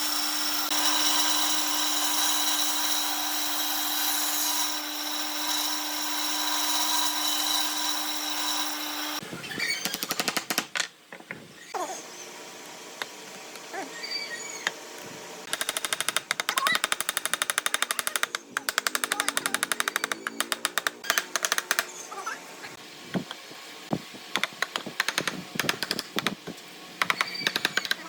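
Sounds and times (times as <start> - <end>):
power tool rattling: 15.5 - 21.9.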